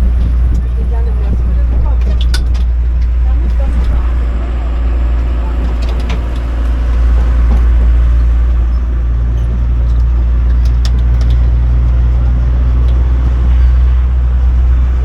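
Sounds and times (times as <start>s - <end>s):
train low rumble: 0.0s - 15.0s
small knocks and rattles: 5.1s - 13.9s.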